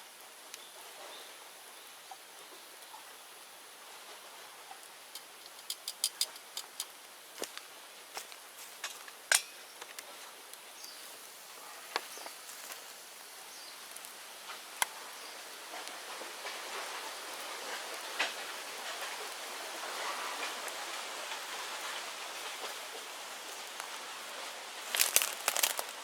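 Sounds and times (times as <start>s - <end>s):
fire hissing: 5.0s - 7.0s, 24.7s - 26.0s
bonfire crackling and popping: 5.0s - 7.6s, 24.8s - 26.0s.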